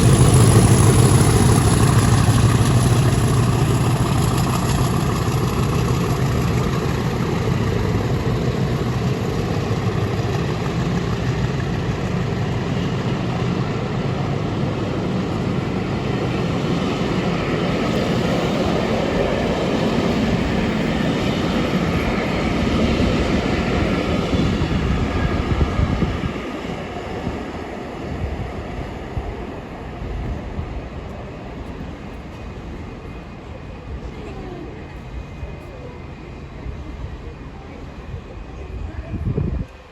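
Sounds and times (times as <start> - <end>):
diesel locomotives droning: 0.0 - 39.9.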